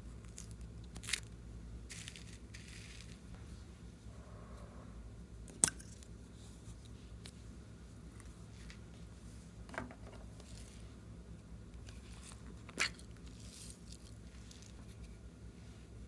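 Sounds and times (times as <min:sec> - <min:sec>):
slime being squished by hand: 0:11.9 - 0:14.8.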